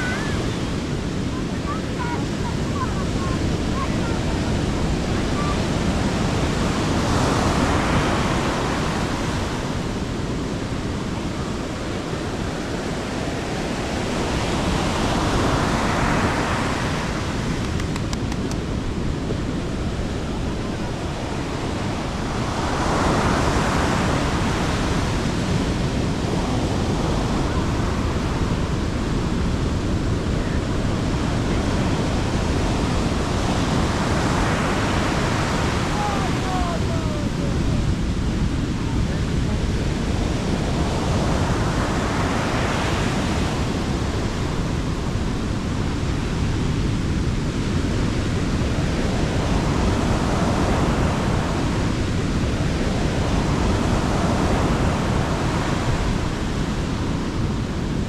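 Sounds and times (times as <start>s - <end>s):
sea waves breaking on beach: 0.0s - 58.0s
wind on microphone: 0.0s - 58.0s.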